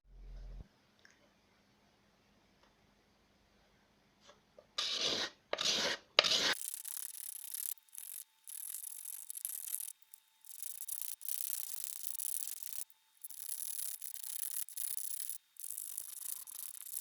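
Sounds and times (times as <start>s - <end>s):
abrasive tool rubbing on wood: 4.8s - 17.0s.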